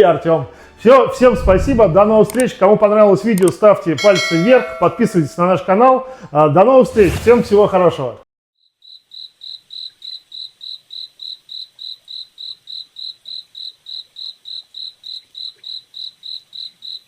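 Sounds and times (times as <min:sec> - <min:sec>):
cricket chirping: 0:08.6 - 0:17.0.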